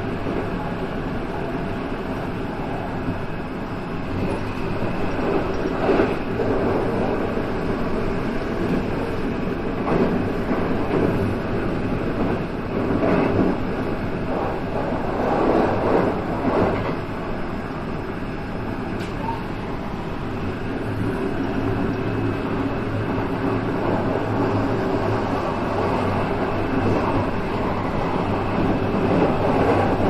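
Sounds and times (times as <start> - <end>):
electric train rolling rumble: 0.0 - 30.0.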